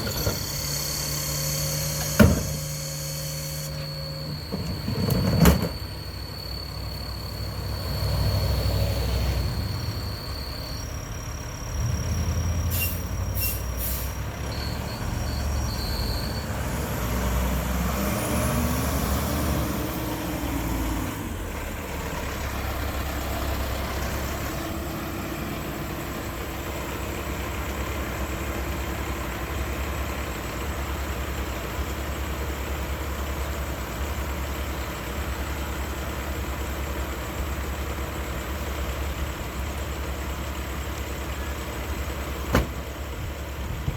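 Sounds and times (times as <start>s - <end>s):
garbage truck engine running: 0.0s - 43.9s
air brake hiss: 12.7s - 14.2s.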